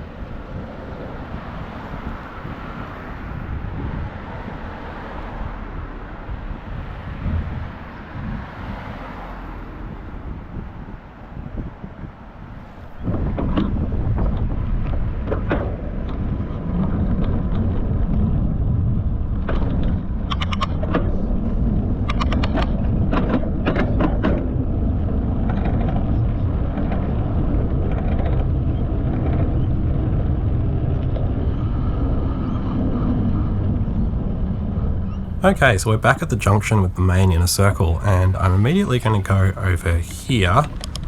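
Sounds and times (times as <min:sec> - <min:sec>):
wind rumbling on microphone: 0:00.0 - 0:35.2
road traffic going by: 0:00.1 - 0:11.5, 0:35.3 - 0:41.0.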